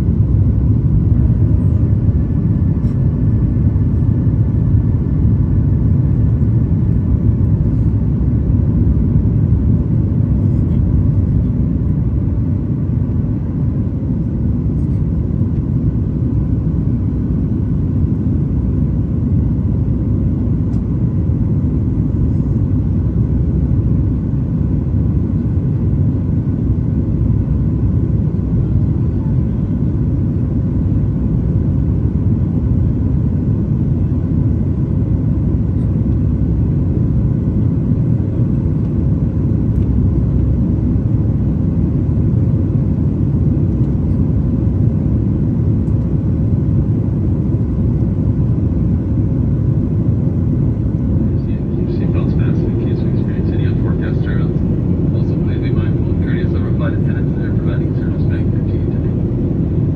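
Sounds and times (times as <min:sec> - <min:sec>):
airplane cabin engine rumble: 0:00.0 - 0:59.9
faint steady tones: 0:51.2 - 0:59.9.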